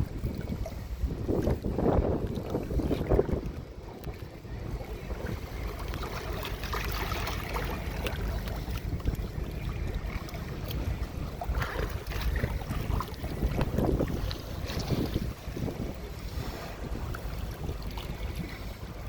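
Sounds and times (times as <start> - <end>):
wind noise on microphone: 0.0 - 6.1, 8.6 - 19.0
water clicks and splashes: 0.2 - 4.3, 5.2 - 15.9.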